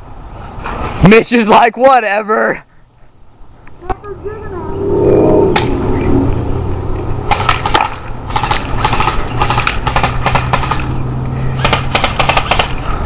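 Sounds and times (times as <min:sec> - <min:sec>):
airsoft gun firing bursts: 0:07.3 - 0:10.9, 0:11.6 - 0:12.8.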